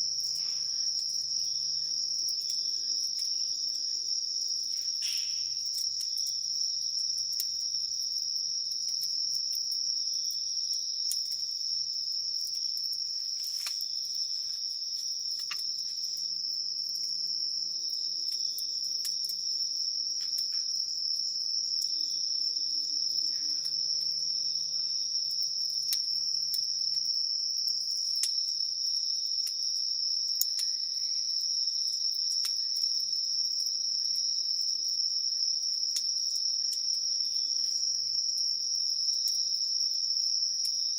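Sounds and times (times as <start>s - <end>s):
crickets trilling: 0.0s - 40.9s
campfire pops and crackles: 2.1s - 11.6s, 12.4s - 17.2s, 17.8s - 22.0s, 25.8s - 30.8s, 31.8s - 33.7s.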